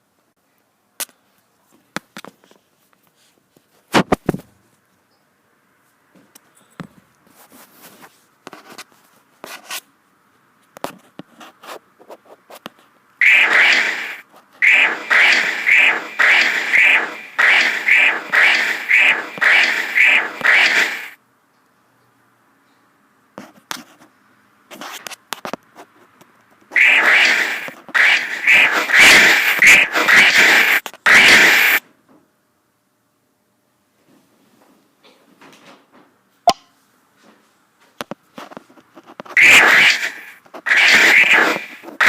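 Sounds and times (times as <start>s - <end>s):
loud sustained phone noise: 13.2s - 21.2s, 26.8s - 31.8s, 39.4s - 42.0s.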